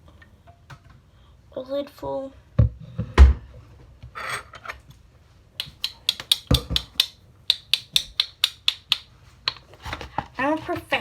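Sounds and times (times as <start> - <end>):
light sharp clicks and taps: 5.6 - 9.7.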